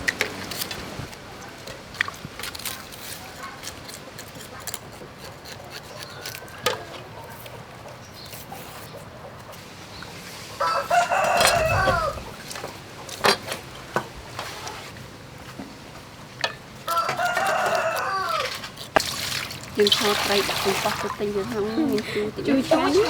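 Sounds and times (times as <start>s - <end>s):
rooster crowing: 6.1s - 7.0s, 10.6s - 12.4s, 16.8s - 18.6s.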